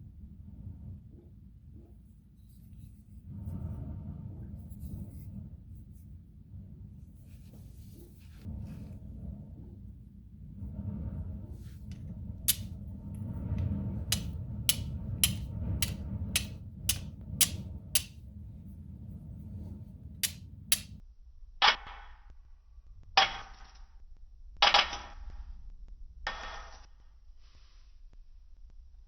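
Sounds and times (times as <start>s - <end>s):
striker clicking on flint: 12.5s - 12.7s, 13.6s - 18.2s, 20.2s - 21.0s.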